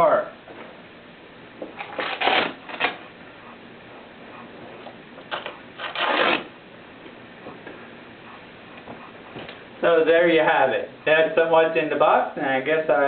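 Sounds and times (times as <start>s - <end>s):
packaging rustling and scraping: 1.8s - 3.0s, 5.3s - 6.5s.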